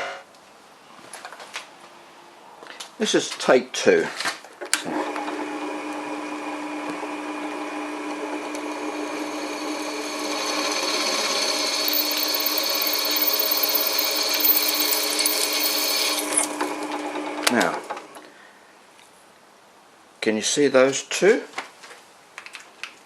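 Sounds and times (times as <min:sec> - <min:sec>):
grindstone motor hum: 0:08.2 - 0:17.1
drill bit grinding on stone: 0:08.5 - 0:16.9.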